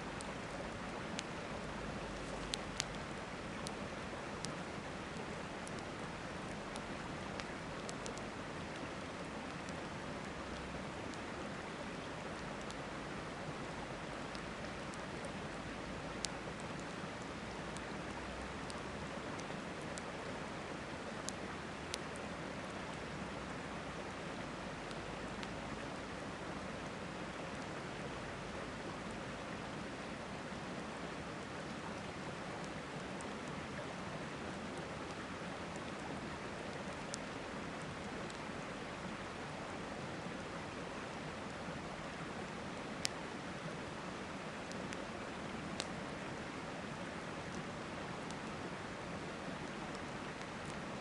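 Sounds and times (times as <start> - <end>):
river running: 0.0 - 51.0
campfire crackling and popping: 0.1 - 1.4, 2.0 - 11.6, 16.2 - 20.2, 44.6 - 46.0.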